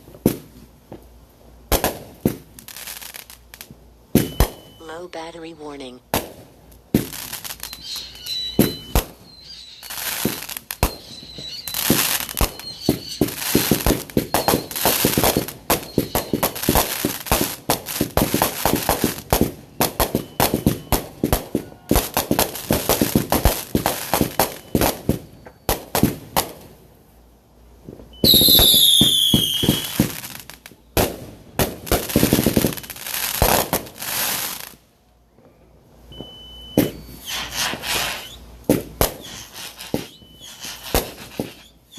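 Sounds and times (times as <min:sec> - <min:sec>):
fireworks crackling and banging: 0:00.0 - 0:26.9, 0:27.8 - 0:34.8, 0:36.1 - 0:41.9
firework whistle falling in pitch: 0:07.6 - 0:16.6, 0:28.2 - 0:30.2, 0:36.2 - 0:38.4, 0:39.2 - 0:41.9.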